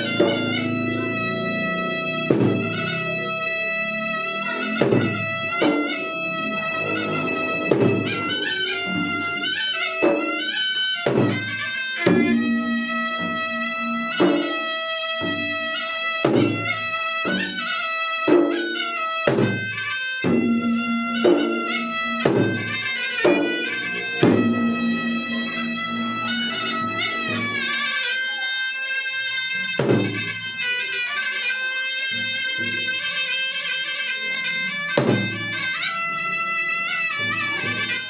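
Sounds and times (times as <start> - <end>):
reed pipe melody: 0.0 - 38.0
drums beaten in a driving pattern: 2.3 - 2.8, 7.6 - 8.3, 11.0 - 13.6, 16.2 - 17.6, 18.3 - 22.6, 24.2 - 26.0, 29.8 - 30.3, 35.0 - 35.4.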